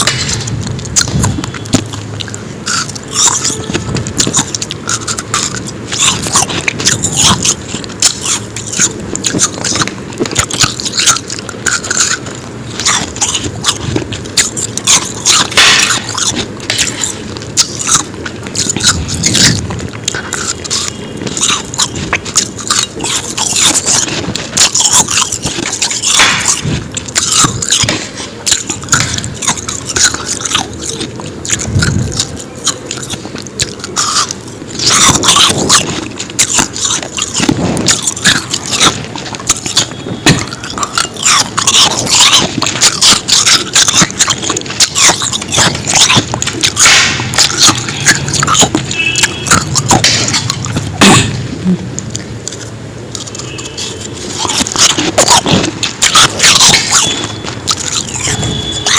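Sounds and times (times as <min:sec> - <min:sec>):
ice crunching while chewed: 0:00.0 - 0:58.9.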